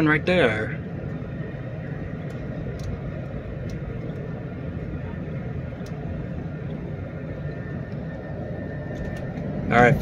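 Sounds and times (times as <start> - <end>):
train car rumbling in motion: 0.0 - 10.0
light ticks: 2.2 - 3.0.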